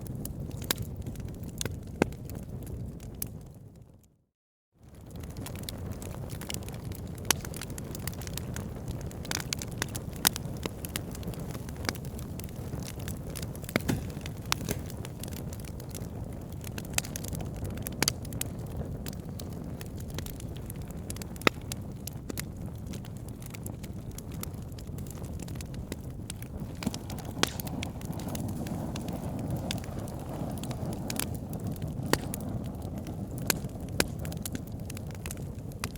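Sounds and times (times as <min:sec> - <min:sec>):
flames rushing: 0:04.9 - 0:35.9
logs crackling: 0:05.2 - 0:35.9
sharp pops: 0:13.7 - 0:15.4, 0:26.7 - 0:28.4.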